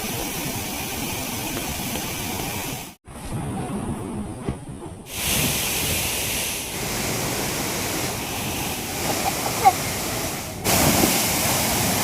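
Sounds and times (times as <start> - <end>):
waterfall rushing: 6.8 - 12.0.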